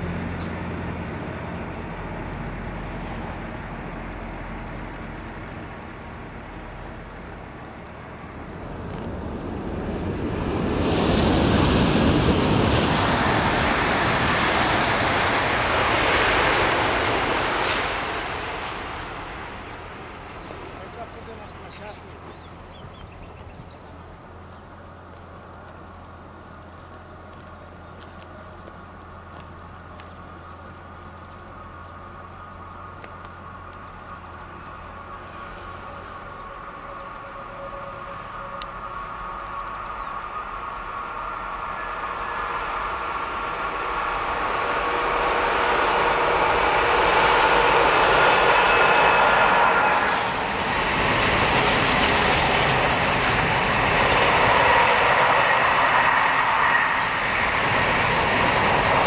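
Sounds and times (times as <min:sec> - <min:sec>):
high-speed train rushing: 0:00.0 - 0:59.0.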